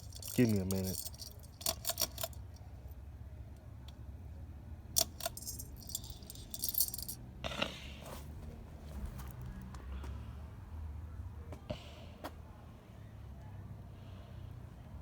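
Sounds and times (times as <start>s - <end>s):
metal pull chain jingling: 0.0s - 2.6s, 5.0s - 7.2s.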